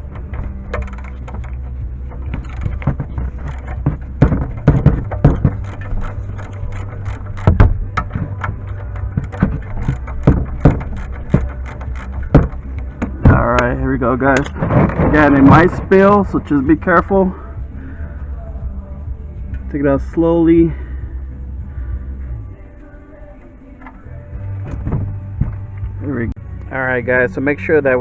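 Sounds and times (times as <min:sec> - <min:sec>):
ratchet clicking: 0:00.0 - 0:02.8, 0:04.7 - 0:13.2
low hum: 0:00.0 - 0:27.9.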